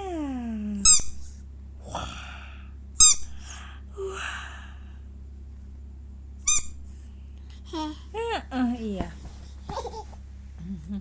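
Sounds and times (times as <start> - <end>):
toy ball squeaks: 0.9 - 1.2, 3.0 - 3.3, 6.5 - 6.8.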